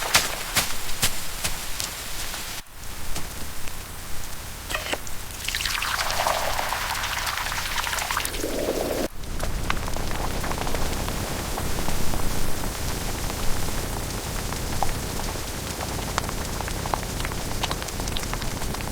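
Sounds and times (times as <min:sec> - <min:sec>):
rain falling: 0:00.0 - 0:18.9
raindrop ticks: 0:05.5 - 0:18.9.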